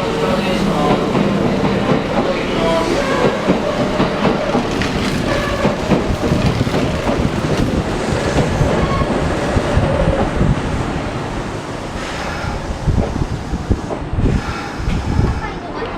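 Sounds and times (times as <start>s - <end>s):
train wheels clattering over rail joints: 3.1s - 10.4s.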